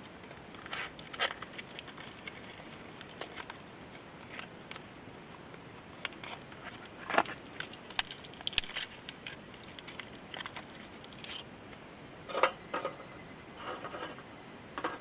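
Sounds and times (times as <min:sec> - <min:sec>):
faint steady hiss: 0:00.0 - 0:15.0
small objects clicking: 0:06.0 - 0:11.4.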